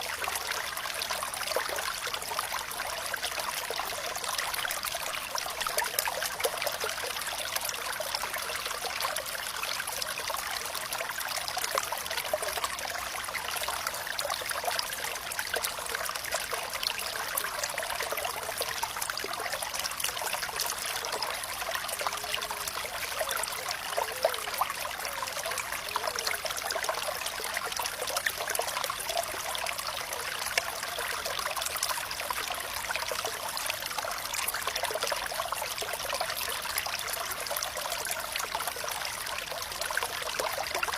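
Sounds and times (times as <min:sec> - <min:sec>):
water trickling: 0:00.0 - 0:40.9.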